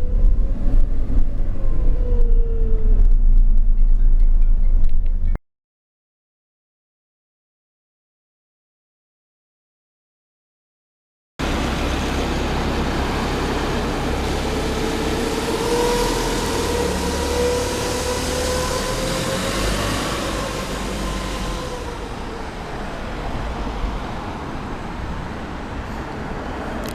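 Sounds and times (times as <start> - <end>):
bus road and drive noise: 0.0 - 5.4, 11.4 - 26.9
whine rising in pitch: 0.0 - 5.4, 11.4 - 23.6.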